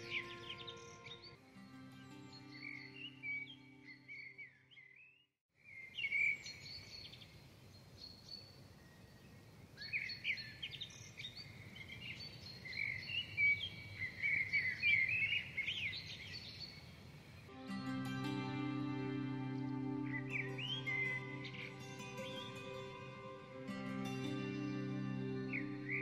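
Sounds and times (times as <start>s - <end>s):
small birds chirping: 0.0s - 1.4s, 2.0s - 17.5s, 19.5s - 26.0s
low background noise: 5.6s - 26.0s.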